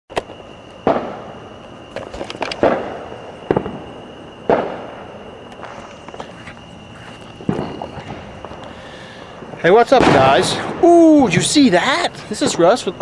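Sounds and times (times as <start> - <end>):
fireworks crackling pops: 0.1 - 12.7
fireworks bangs echoing: 0.8 - 5.5, 7.3 - 8.6, 9.3 - 11.7.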